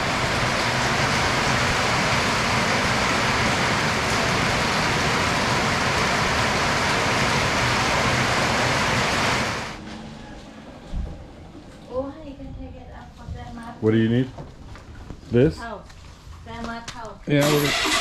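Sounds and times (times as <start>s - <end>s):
heavy rain: 0.0s - 9.8s.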